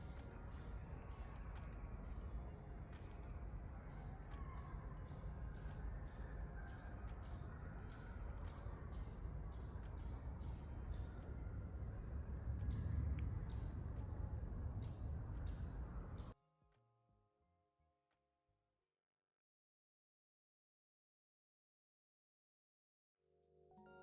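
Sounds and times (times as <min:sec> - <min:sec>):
steady low rumble: 0:00.0 - 0:16.4.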